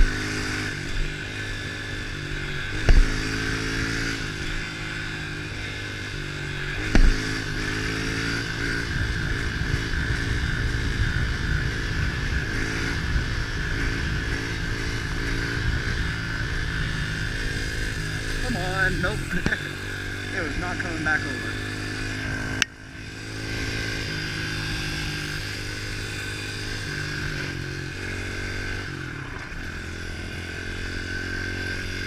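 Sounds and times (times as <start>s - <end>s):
motorbike engine revving: 0.0s - 32.0s
loud bumps: 2.8s - 3.2s, 6.9s - 7.2s.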